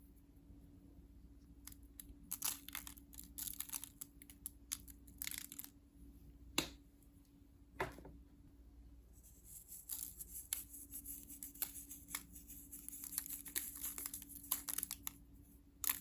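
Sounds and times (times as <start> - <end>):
wrapping crinkling and tearing: 2.3 - 5.7, 11.6 - 15.2.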